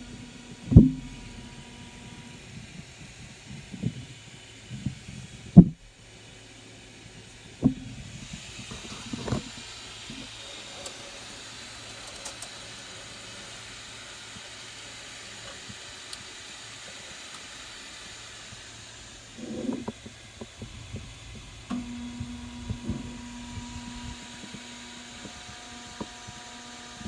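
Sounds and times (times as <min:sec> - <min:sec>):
steady machine hiss: 0:00.0 - 0:27.0.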